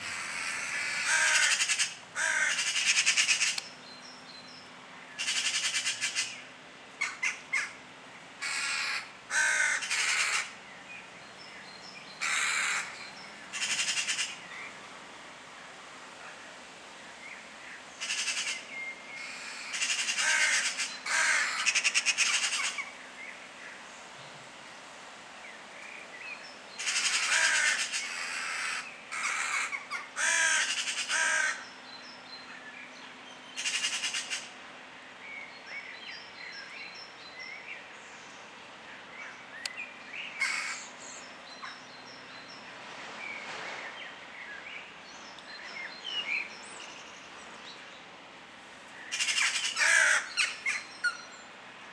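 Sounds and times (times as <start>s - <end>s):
crows cawing: 0.0s - 3.6s, 8.4s - 10.6s, 12.2s - 14.3s, 19.2s - 22.8s, 26.8s - 31.7s, 40.4s - 40.8s, 49.2s - 50.5s.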